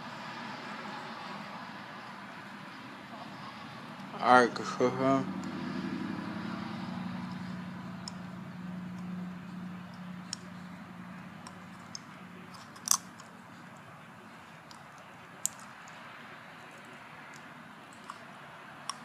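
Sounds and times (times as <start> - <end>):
low steady hum: 0.0 - 19.0
sharp clicks and crinkles: 9.8 - 19.0.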